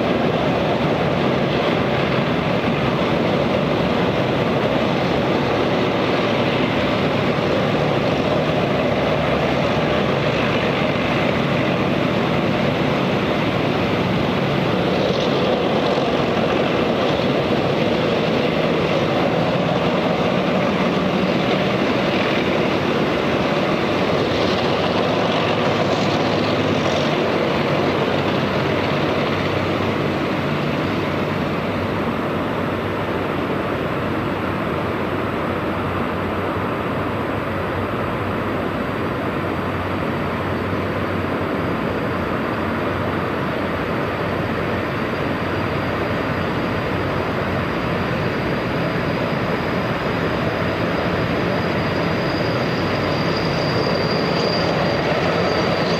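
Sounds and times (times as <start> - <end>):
faint high whine: 29.8 - 55.9.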